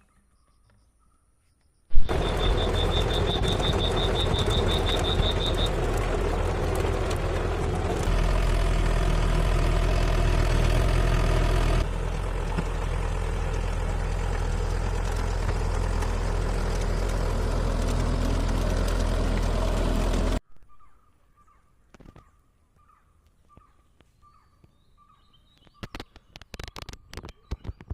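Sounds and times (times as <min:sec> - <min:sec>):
tractor engine running: 0:01.9 - 0:20.4.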